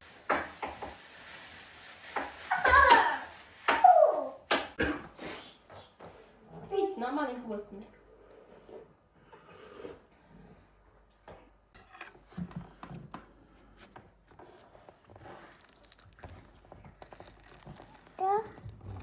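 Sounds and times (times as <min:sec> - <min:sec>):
faint rustling and scraping: 0:00.0 - 0:04.3, 0:07.9 - 0:09.1, 0:11.8 - 0:19.0.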